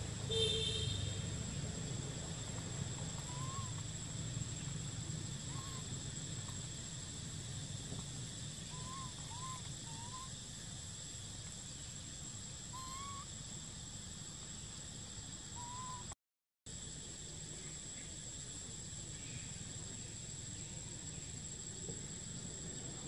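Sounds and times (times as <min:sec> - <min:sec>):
bird whistled calls: 0:03.2 - 0:03.8, 0:05.5 - 0:05.9, 0:08.6 - 0:10.4, 0:12.7 - 0:13.3, 0:15.5 - 0:16.1.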